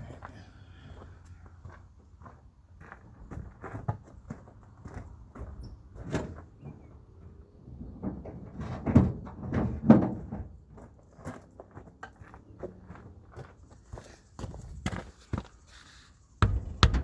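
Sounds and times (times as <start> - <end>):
tire plug tool knocking: 16.4 - 17.0.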